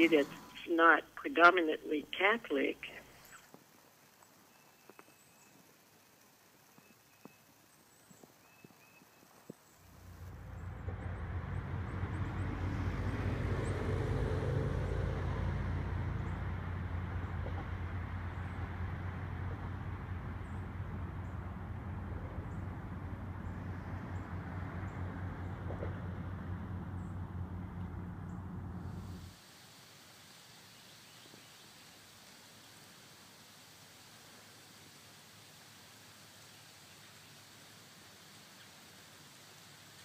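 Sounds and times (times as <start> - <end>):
vehicle engine humming: 0.0 - 3.4, 9.6 - 29.3.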